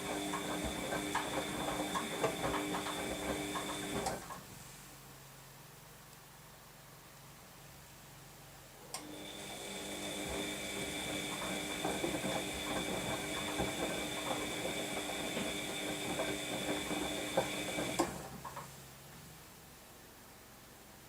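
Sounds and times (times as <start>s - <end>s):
washing machine motor whine: 0.0s - 4.3s, 8.8s - 18.5s
tumbling load clicks and knocks: 11.2s - 18.1s.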